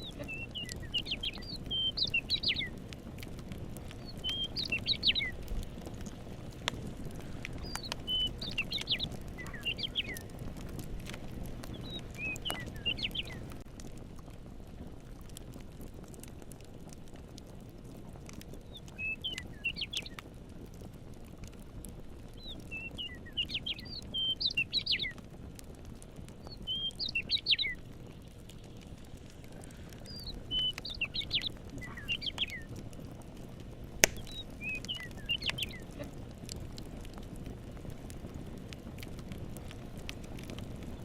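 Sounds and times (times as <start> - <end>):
songbird chirping: 0.0 - 2.8, 4.0 - 5.5, 7.5 - 10.3, 11.6 - 13.6, 18.7 - 20.2, 22.4 - 25.2, 26.4 - 28.9, 29.5 - 32.7, 34.0 - 36.1
campfire crackling: 0.0 - 41.0.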